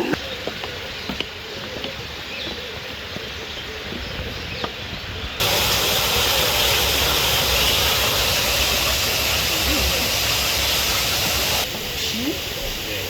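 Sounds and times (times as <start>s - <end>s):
loud steady hiss: 4.8s - 13.0s.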